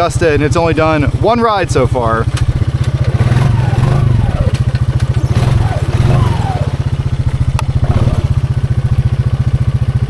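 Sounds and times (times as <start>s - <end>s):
engine idling with low pulsing beat: 0.0s - 10.0s
faint squeaks: 3.2s - 8.5s.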